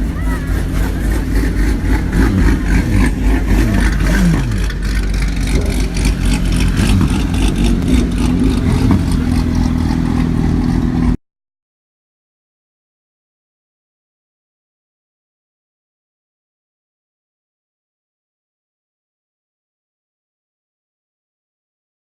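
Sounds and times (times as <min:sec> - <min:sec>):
car engine revving and idling: 0:00.0 - 0:11.2.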